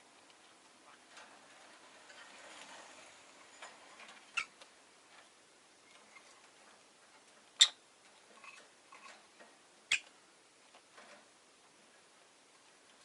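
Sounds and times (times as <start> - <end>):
birds clicking and tapping in cage: 0.2 - 11.8
bird peeps: 7.6 - 7.8, 9.9 - 10.1.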